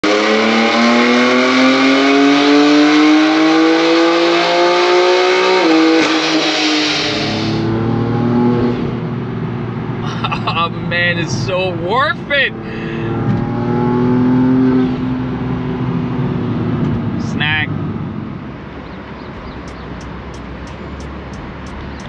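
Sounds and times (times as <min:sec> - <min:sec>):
car engine revving on dyno: 0:00.0 - 0:09.1, 0:12.6 - 0:17.2
engine sharp snap: 0:19.3 - 0:22.0.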